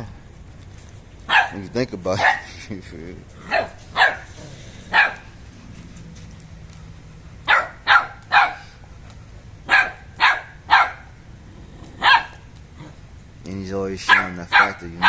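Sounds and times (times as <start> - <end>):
dog barking: 1.3 - 2.5, 3.4 - 5.4, 7.5 - 8.8, 9.7 - 11.2, 12.0 - 12.4, 14.1 - 15.0.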